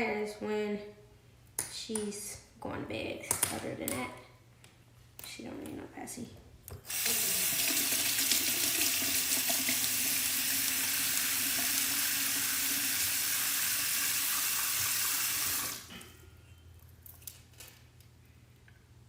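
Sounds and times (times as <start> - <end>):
tap water running into sink: 6.9 - 15.9.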